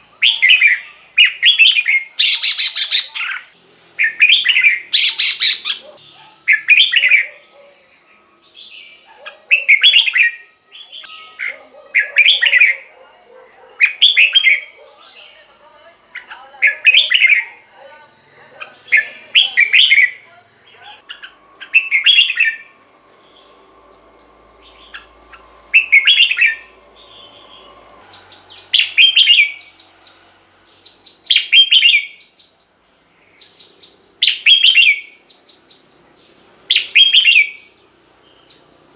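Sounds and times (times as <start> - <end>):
bird song phrases: 0.0 - 38.9
bird chattering notes: 0.2 - 7.5, 16.0 - 23.6, 24.6 - 30.2.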